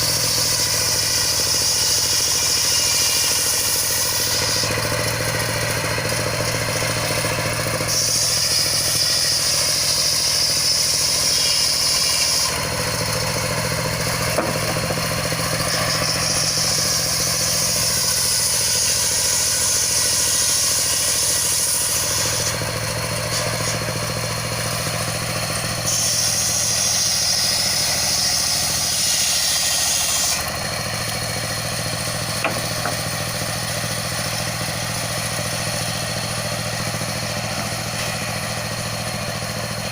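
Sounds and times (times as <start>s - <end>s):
saw blade cutting wood: 0.0s - 39.9s
sawmill engine droning: 0.0s - 39.9s.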